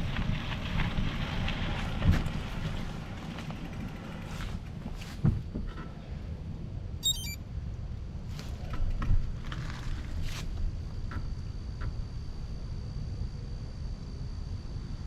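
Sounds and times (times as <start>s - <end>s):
bike tyres rumbling on trail: 0.0s - 5.7s
high chirp: 7.0s - 7.4s.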